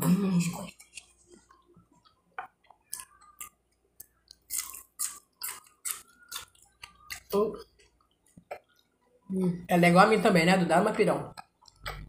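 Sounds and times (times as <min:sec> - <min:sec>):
wet chewing and mouth clicks: 0:00.6 - 0:09.1, 0:11.3 - 0:12.0.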